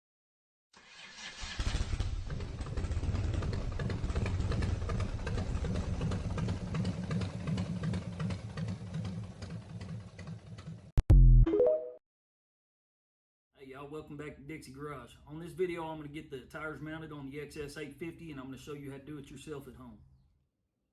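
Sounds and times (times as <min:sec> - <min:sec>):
motorcycle engine running: 0:02.1 - 0:10.9.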